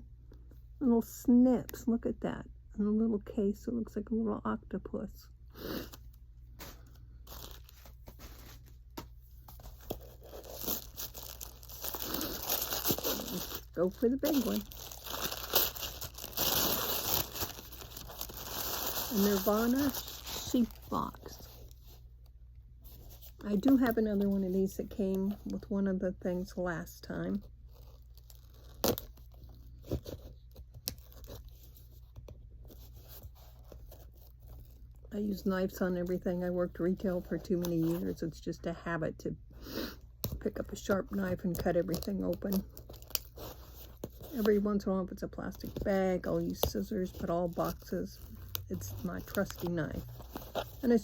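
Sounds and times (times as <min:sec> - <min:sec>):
faint scraping and rustling: 0:06.6 - 0:14.6
packaging rustling and crinkling: 0:06.6 - 0:22.1, 0:27.5 - 0:35.0, 0:41.1 - 0:44.5, 0:45.6 - 0:51.0
cardboard snapping and tearing: 0:28.2 - 0:31.5, 0:42.9 - 0:44.2.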